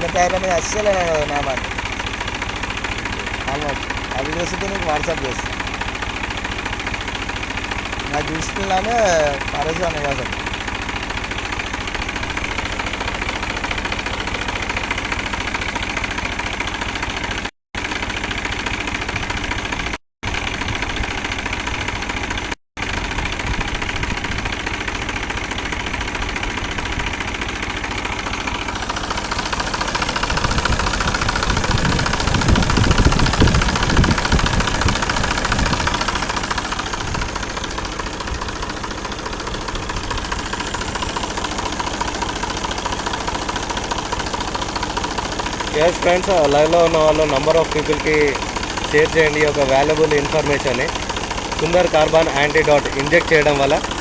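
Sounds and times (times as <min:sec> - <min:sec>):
tractor diesel engine idling: 0:00.0 - 0:54.0.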